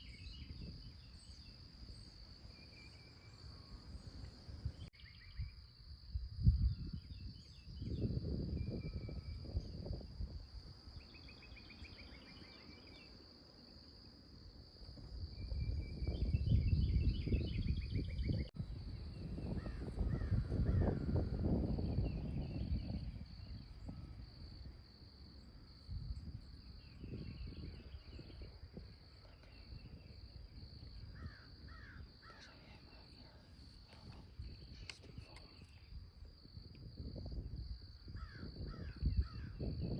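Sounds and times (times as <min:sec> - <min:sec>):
songbirds chirping: 0:00.0 - 0:06.0, 0:06.6 - 0:36.7
high insect drone: 0:00.0 - 0:39.9
crows cawing: 0:31.2 - 0:32.6.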